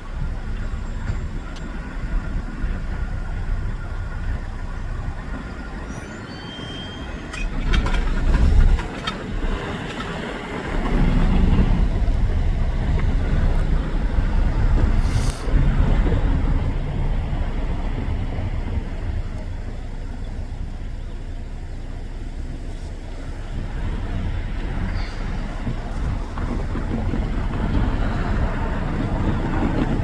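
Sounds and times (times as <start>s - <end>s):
low rumble of vehicles and train: 0.0s - 30.0s
brief hiss: 15.0s - 15.6s.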